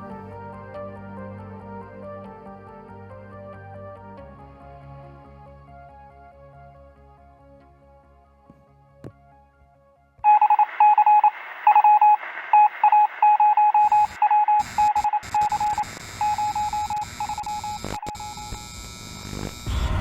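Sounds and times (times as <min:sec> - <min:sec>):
rapid electronic beeps: 0:10.2 - 0:20.0
radio hiss: 0:10.3 - 0:20.0
low rumble: 0:19.7 - 0:20.0.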